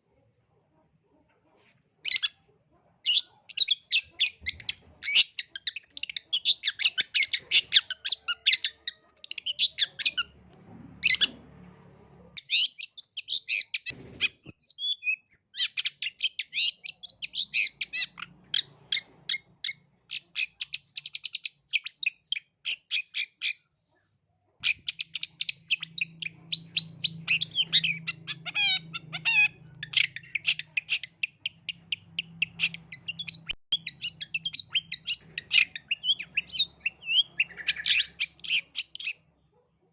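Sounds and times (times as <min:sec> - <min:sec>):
bird singing high chattering notes: 0:24.6 - 0:39.2.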